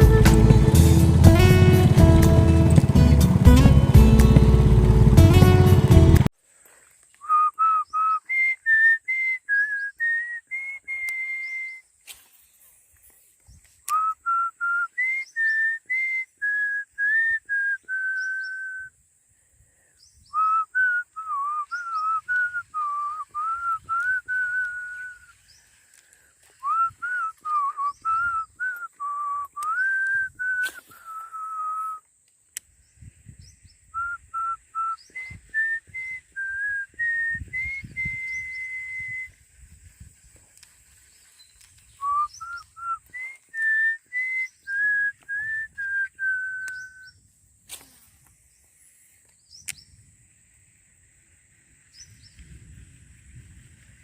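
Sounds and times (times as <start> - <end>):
person whistling a melody: 7.2 - 11.8, 13.9 - 18.9, 20.3 - 25.3, 26.6 - 32.0, 34.0 - 39.4, 42.0 - 47.2.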